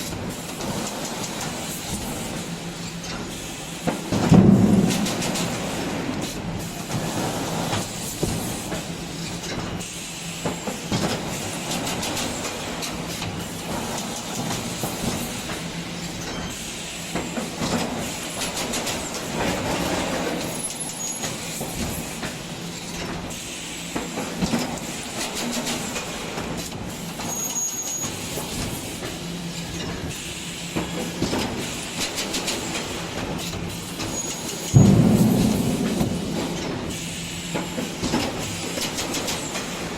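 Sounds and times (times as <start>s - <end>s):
machinery clattering: 31.2s - 39.9s
steady low hum: 34.7s - 38.4s.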